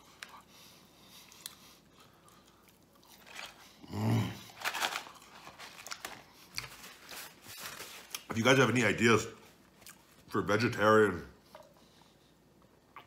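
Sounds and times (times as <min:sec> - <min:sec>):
low hummed grunt: 0:03.8 - 0:04.6.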